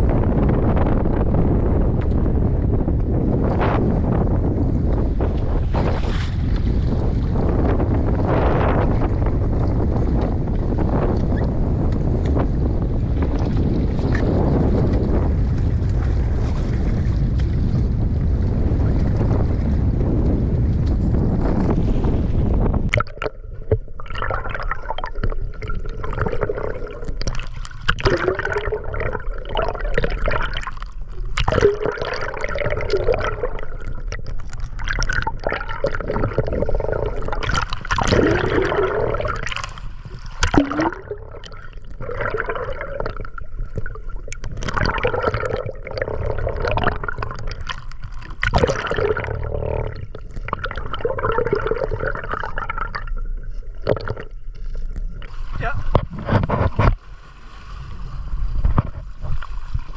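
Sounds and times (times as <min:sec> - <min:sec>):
water sloshing and gurgling: 0:00.0 - 0:59.9
water splashing: 0:22.9 - 0:59.9.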